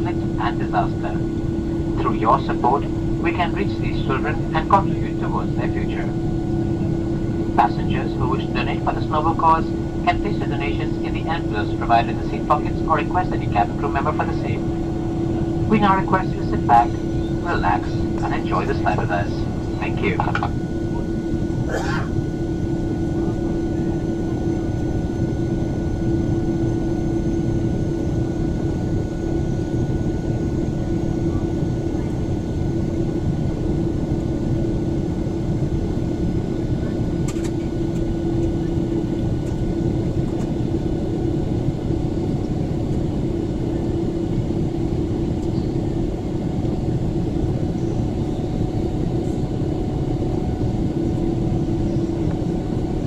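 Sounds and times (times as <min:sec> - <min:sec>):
constant hum: 0:00.0 - 0:53.0
jet engine and airflow drone: 0:00.0 - 0:53.0.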